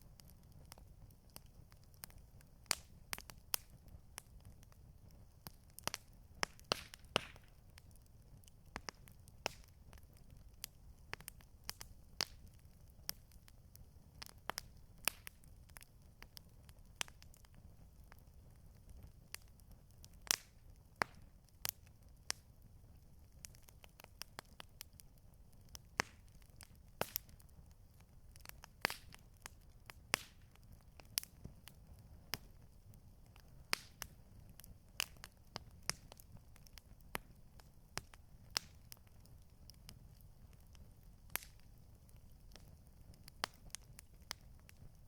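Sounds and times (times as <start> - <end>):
campfire crackling and popping: 0.0 - 45.0.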